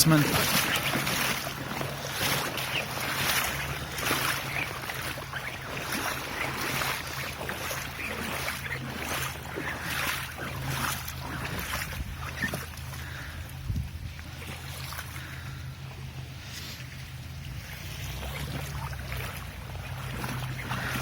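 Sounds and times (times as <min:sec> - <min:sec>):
floodwater splashing: 0:00.0 - 0:21.0
low hum: 0:00.0 - 0:21.0
wind on microphone: 0:10.8 - 0:12.7, 0:13.3 - 0:14.5.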